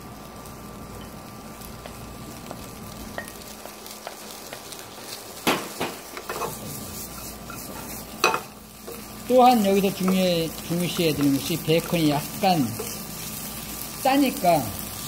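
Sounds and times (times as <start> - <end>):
food sizzling in a frying pan: 0.0 - 15.0
wooden spatula scraping a pan: 6.2 - 8.2.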